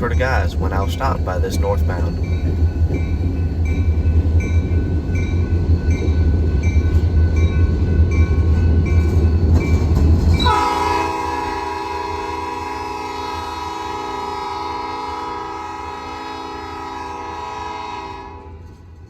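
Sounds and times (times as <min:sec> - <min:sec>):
heavy low rumble: 0:00.0 - 0:05.8
railroad crossing bell ringing: 0:00.0 - 0:19.0
locomotive air horn: 0:10.4 - 0:18.6.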